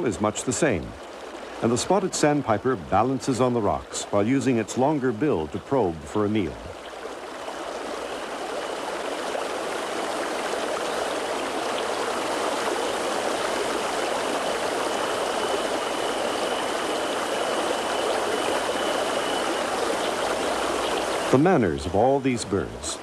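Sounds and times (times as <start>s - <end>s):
stream rushing over rocks: 0.0s - 23.0s
faint high steady tone: 14.1s - 23.0s.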